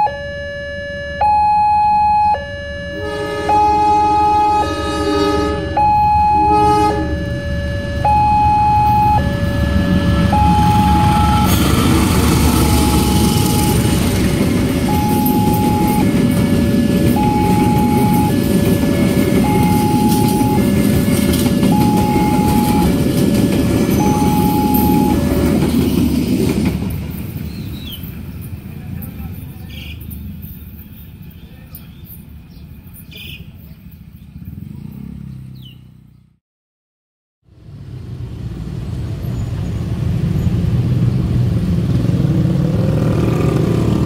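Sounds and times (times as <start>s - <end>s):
two-tone crossing alarm: 0.0s - 26.1s
train horn: 2.9s - 8.0s, 9.0s - 25.4s
train rumbling over rails: 3.0s - 34.8s, 37.5s - 44.0s.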